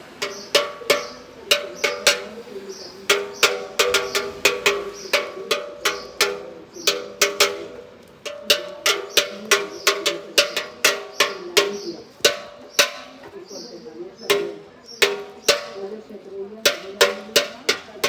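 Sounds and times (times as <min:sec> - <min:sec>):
hand bells pealing: 0:00.0 - 0:13.2.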